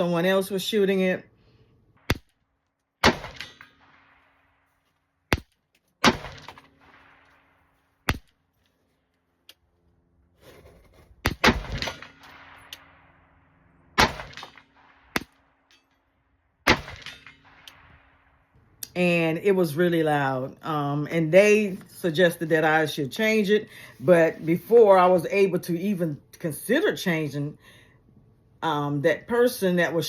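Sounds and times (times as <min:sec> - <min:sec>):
gunshots with echo: 0:03.0 - 0:04.4, 0:05.3 - 0:08.3, 0:11.3 - 0:13.2, 0:14.0 - 0:15.4, 0:16.6 - 0:18.2.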